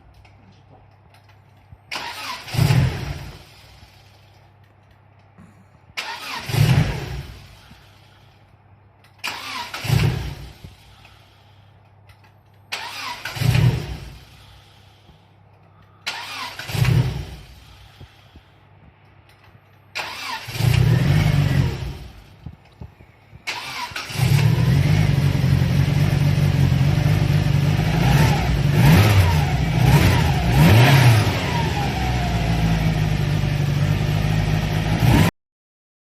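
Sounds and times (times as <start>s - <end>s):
car engine starting: 1.1s - 4.8s, 6.0s - 18.5s, 19.3s - 35.3s
engine revving: 1.9s - 4.0s, 6.0s - 7.8s, 9.2s - 10.9s, 12.7s - 14.5s, 16.0s - 18.2s, 20.0s - 22.5s, 23.4s - 35.3s.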